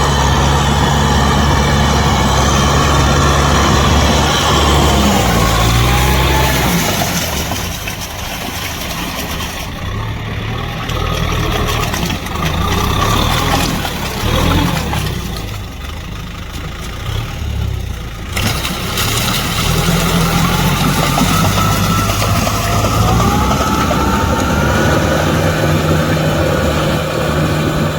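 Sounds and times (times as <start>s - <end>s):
rising whine: 0.0s - 7.6s, 19.7s - 27.9s
tractor diesel engine under load: 0.0s - 27.9s.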